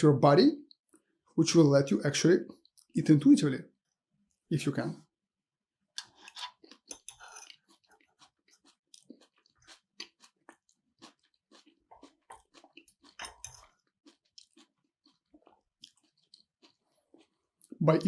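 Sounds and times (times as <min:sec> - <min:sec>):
person chewing food: 0:05.8 - 0:17.8.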